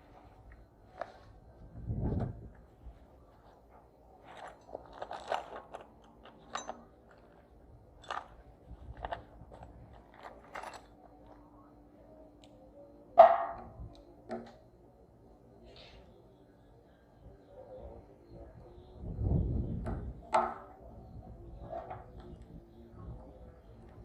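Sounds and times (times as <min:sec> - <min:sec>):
ringing clank: 0:06.4 - 0:07.2, 0:13.1 - 0:14.6.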